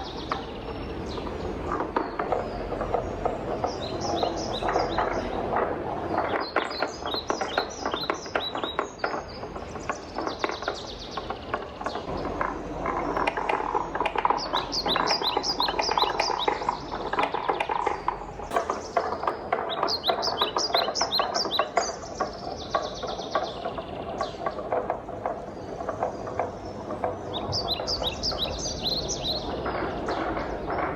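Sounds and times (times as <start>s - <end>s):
wooden balls rolling on marble run: 0.0s - 30.9s.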